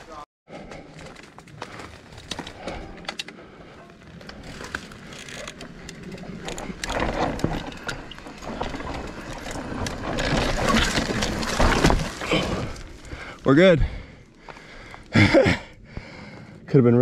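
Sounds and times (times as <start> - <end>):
bike tyres on dirt: 0.0 - 16.6
bike clicks and rattles: 0.6 - 13.3.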